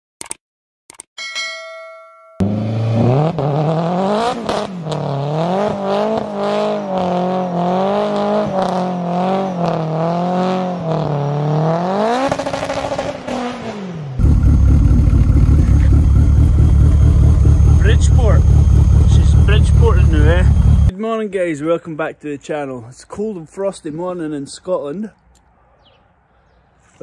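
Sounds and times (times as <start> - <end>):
rotary engine revving: 2.4 - 20.9
engine idling with choppy pulse: 14.2 - 20.9.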